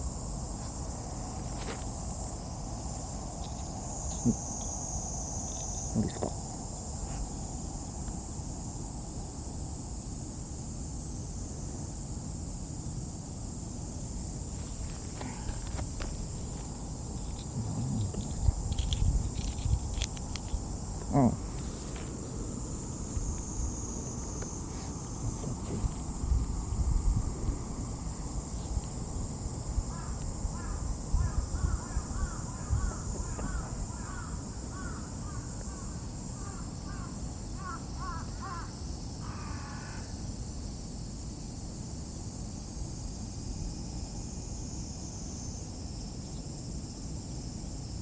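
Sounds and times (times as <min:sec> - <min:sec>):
high insect buzz: 0:00.0 - 0:48.0
low rumbles: 0:15.0 - 0:29.5
crows cawing: 0:29.9 - 0:40.1.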